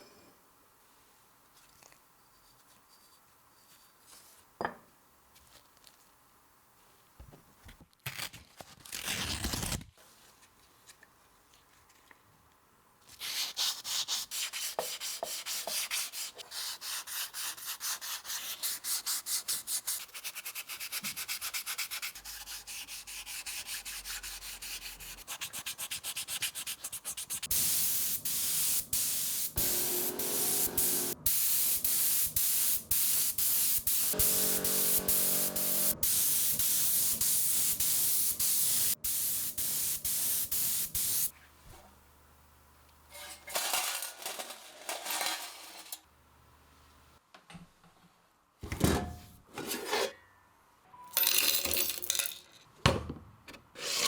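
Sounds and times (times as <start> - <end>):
sandpaper rubbing: 13.2 - 32.0, 32.9 - 41.4.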